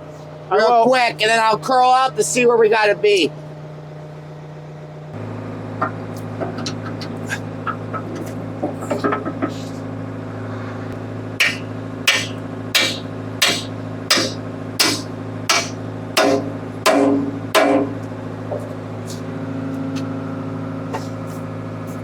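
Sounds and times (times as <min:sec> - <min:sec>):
diesel engine running: 0:00.0 - 0:22.0
hammer blows on metal: 0:11.4 - 0:18.0.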